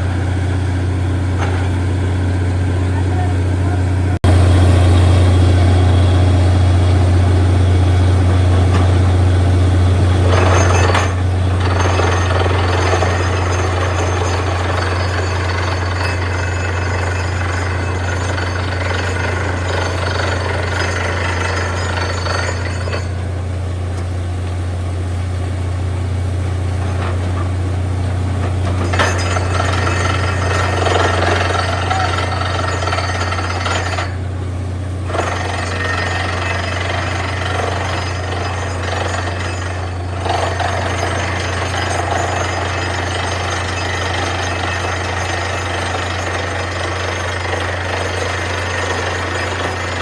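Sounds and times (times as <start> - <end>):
low engine drone: 0.0 - 50.0
drill rattling hammering: 10.2 - 23.2, 28.6 - 34.2, 35.1 - 50.0.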